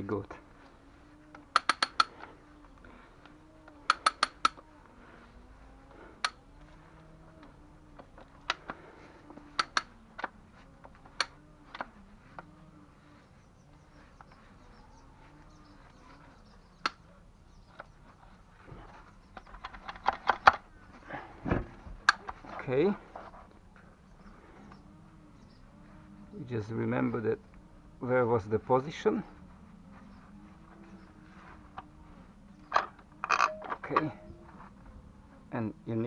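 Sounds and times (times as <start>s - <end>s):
metallic clicks of hand tools: 1.4s - 2.2s, 3.8s - 4.6s, 6.2s - 6.4s, 9.5s - 10.3s
faint wavering tone: 29.2s - 35.5s.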